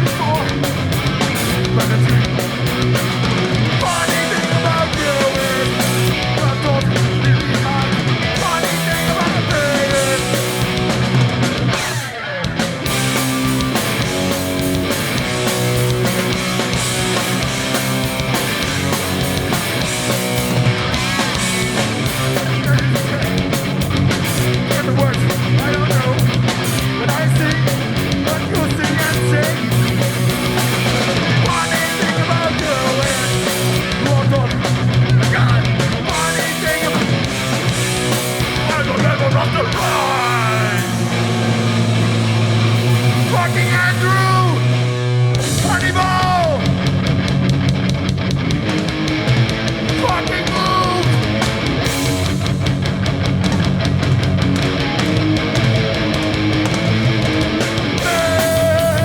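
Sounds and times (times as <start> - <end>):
bass guitar: 0.0 - 59.0
distorted electric guitars: 0.0 - 59.0
fast drums: 0.0 - 59.0.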